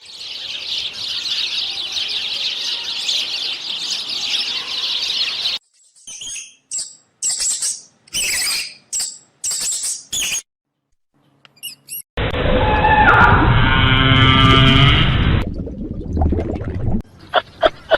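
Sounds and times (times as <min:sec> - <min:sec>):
chorus of birds chirping: 0:00.0 - 0:10.4, 0:17.1 - 0:17.9.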